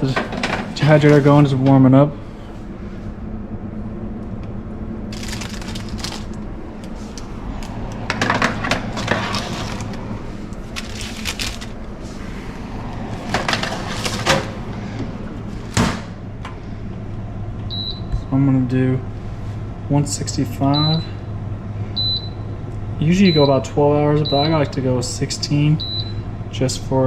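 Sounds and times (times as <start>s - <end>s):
food dehydrator humming: 2.1s - 17.0s
crackling handling noise: 5.1s - 12.2s, 13.0s - 14.6s.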